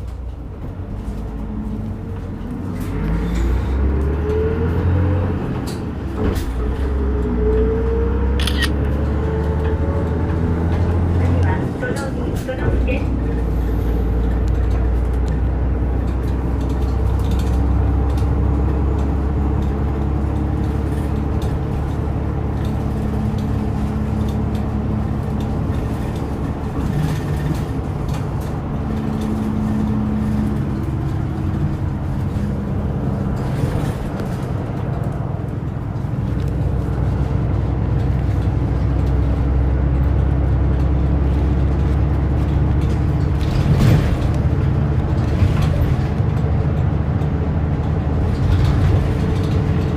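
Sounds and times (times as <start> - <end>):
bus diesel engine droning: 0.0 - 49.9.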